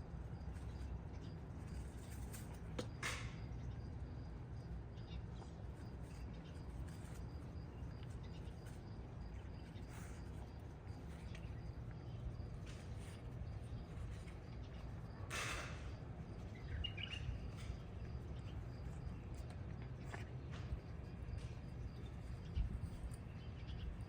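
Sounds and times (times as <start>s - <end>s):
faint bird chirps: 4.6s - 19.6s.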